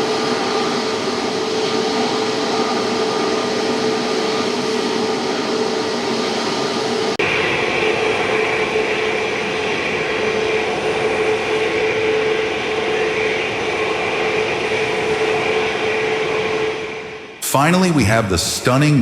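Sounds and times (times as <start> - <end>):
jet engines whining drone: 0.0 - 19.0.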